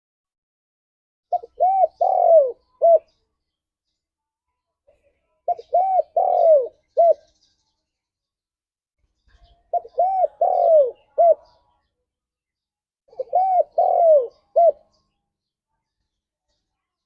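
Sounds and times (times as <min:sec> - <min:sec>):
dove cooing: 0:01.3 - 0:03.1, 0:05.5 - 0:07.3, 0:09.7 - 0:11.6, 0:13.1 - 0:14.9.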